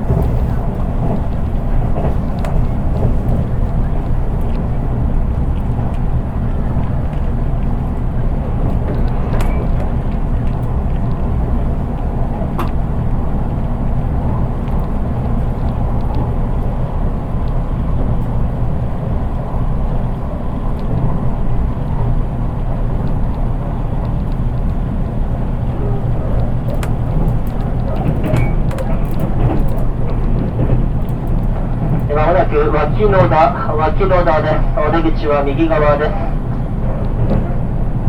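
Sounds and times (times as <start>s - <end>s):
train wheels rumbling on rail: 0.0s - 38.0s
faint clicks: 20.6s - 32.1s.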